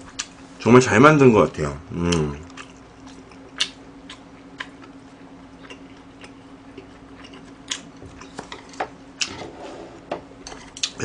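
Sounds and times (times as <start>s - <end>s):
faint steady hum: 0.0s - 11.0s
close chewing with mouth clicks: 2.1s - 8.4s.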